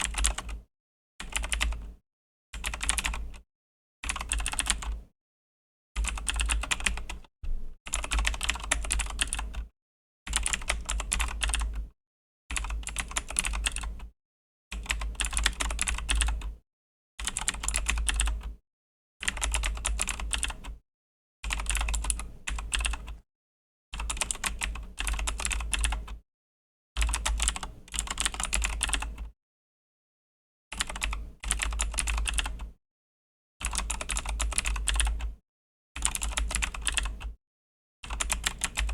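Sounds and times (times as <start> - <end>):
typing on clicky mechanical keyboard: 0.0 - 0.6, 1.2 - 1.8, 2.6 - 3.4, 4.1 - 5.0, 6.0 - 7.3, 7.9 - 9.6, 10.3 - 11.7, 12.6 - 13.9, 14.7 - 16.6, 17.2 - 18.5, 19.2 - 20.8, 21.5 - 23.2, 24.0 - 26.2, 27.0 - 29.3, 30.8 - 32.7, 33.6 - 35.3, 36.0 - 37.3, 38.1 - 38.9.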